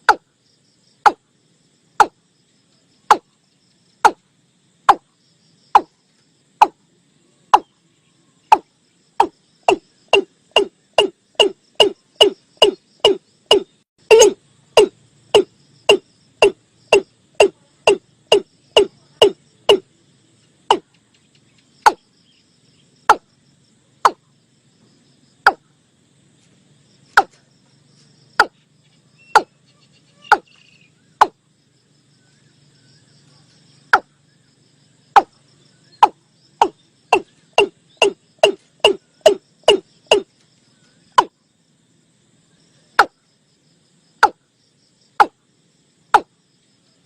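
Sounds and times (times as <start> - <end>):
bird calling hollow notes: 0.0 - 0.3, 2.0 - 2.2, 3.1 - 3.3, 6.6 - 6.8, 8.5 - 19.9, 20.7 - 20.9, 21.8 - 22.1, 23.1 - 23.3, 24.0 - 24.3, 25.5 - 25.7, 28.4 - 28.6, 29.2 - 31.4, 33.9 - 34.2, 35.1 - 40.3.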